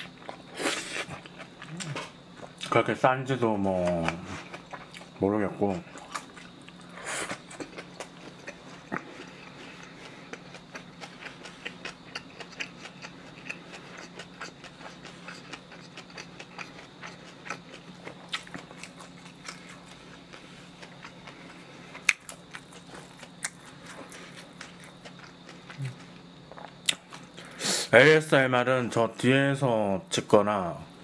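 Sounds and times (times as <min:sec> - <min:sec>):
chewing with wet mouth clicks: 0:03.8 - 0:05.2, 0:05.9 - 0:27.4.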